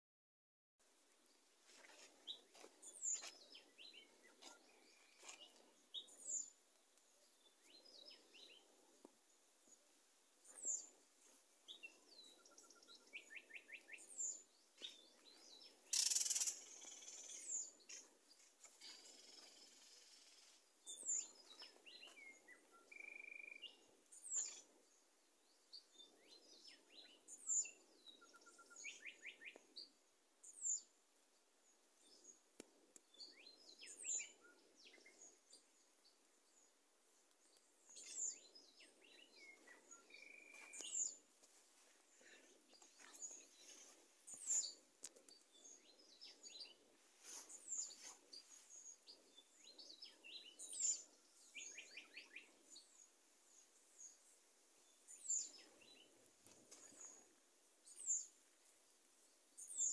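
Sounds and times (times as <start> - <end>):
faint low background noise: 0.8 - 59.9
bird chirps: 11.6 - 24.8, 25.8 - 30.9, 37.3 - 41.2, 42.2 - 53.1
bird trill: 15.9 - 17.5.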